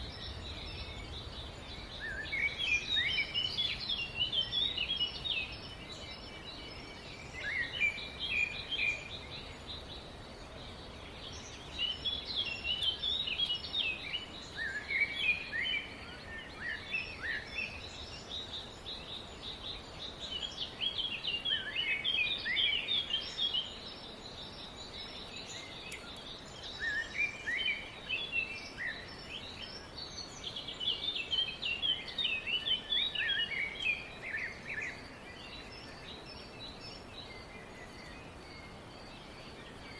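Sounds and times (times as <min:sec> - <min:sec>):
songbirds twittering: 0:00.0 - 0:39.9
steady background hiss: 0:00.0 - 0:39.9.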